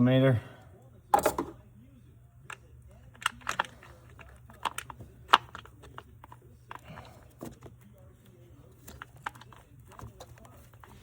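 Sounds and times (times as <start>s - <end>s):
hand tools clicking on plastic parts: 3.1s - 7.6s, 8.8s - 11.0s.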